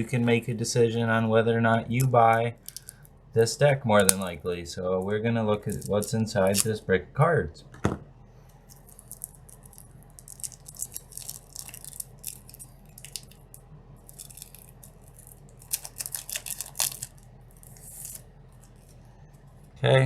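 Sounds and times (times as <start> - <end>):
plastic wrapping crinkling: 1.9 - 3.1, 5.6 - 6.7, 8.6 - 19.7
cards clicking: 4.0 - 4.3, 5.6 - 6.7.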